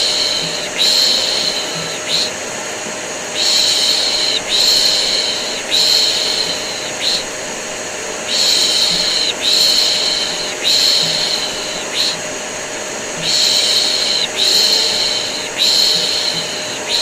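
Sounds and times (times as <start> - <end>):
vacuum cleaner hum: 0.0 - 17.0.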